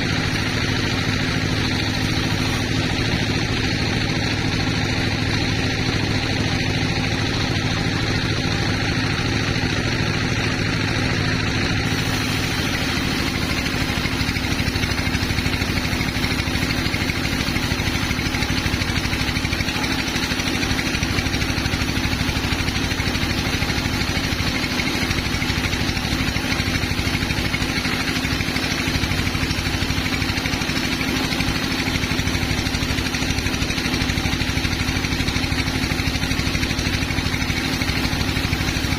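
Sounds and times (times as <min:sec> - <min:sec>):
sawmill machinery drone: 0:00.0 - 0:38.9
high hiss: 0:11.8 - 0:18.4.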